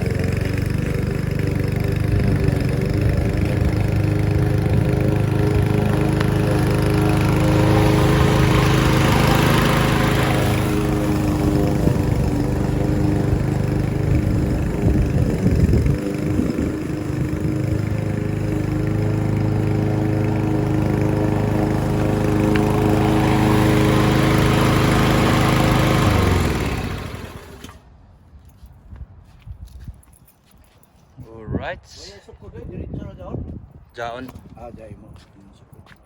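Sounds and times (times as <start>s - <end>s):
lawn mower engine mowing grass: 0.0s - 27.9s.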